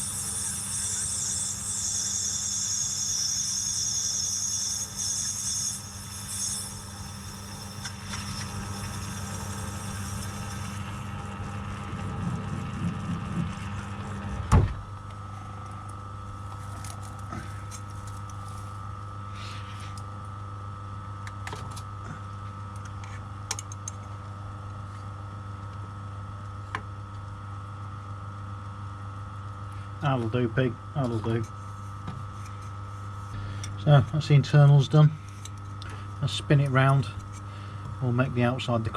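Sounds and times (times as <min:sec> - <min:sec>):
milling machine cutting nylon: 0:00.0 - 0:14.1.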